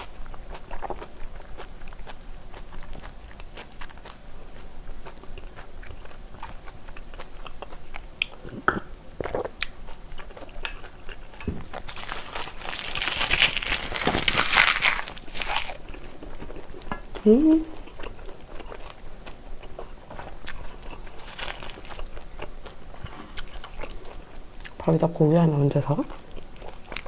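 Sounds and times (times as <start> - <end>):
chewing with wet mouth clicks: 0.0 - 13.0, 15.1 - 24.8, 26.1 - 27.0
loud crunching: 11.6 - 15.9, 21.0 - 22.1.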